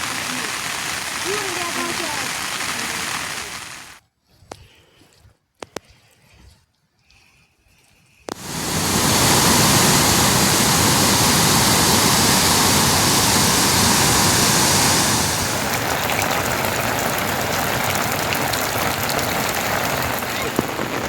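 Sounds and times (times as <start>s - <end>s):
heavy rain hissing: 0.0s - 4.0s, 8.3s - 21.0s
raindrops ticking: 0.0s - 4.0s, 8.3s - 21.0s.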